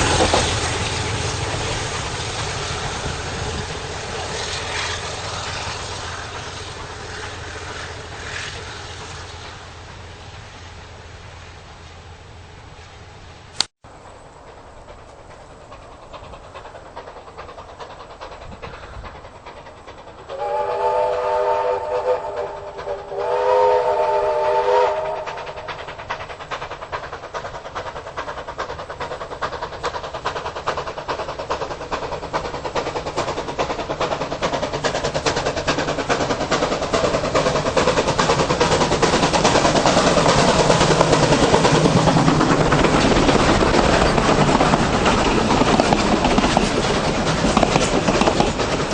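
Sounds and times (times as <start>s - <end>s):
train running noise: 0.0s - 48.9s
train whistle blasts: 20.3s - 25.5s.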